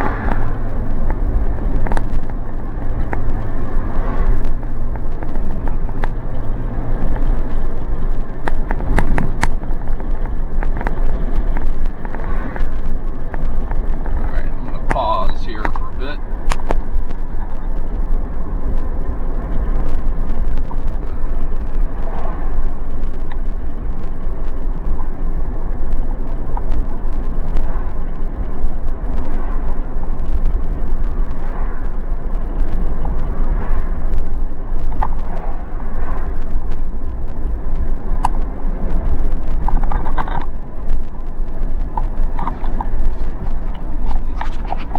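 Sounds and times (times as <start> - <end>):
vehicle road noise rumble: 0.0 - 44.9
small rattles and clicks: 0.3 - 15.0, 15.6 - 44.9.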